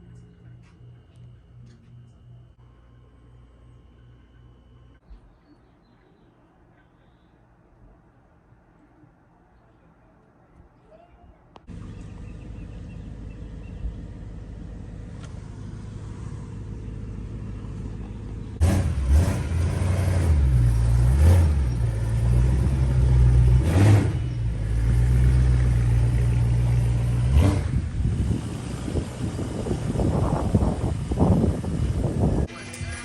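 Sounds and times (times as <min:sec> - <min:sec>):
car exhaust rumble: 0:11.6 - 0:32.5.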